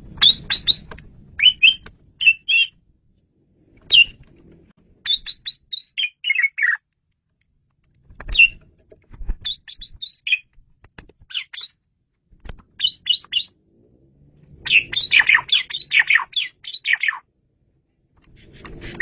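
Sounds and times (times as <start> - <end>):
starling singing: 0.2 - 2.8, 5.1 - 6.8, 9.4 - 10.5, 12.8 - 13.6, 14.6 - 17.3.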